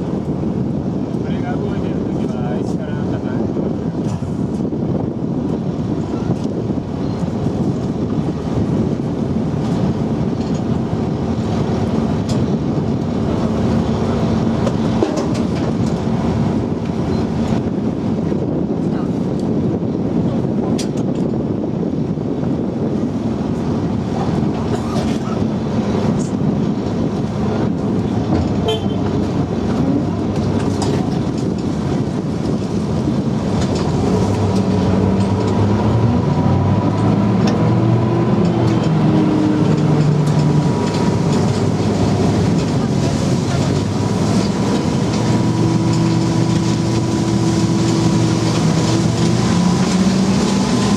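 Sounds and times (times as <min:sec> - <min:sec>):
vehicle engine droning: 0:27.3 - 0:50.9.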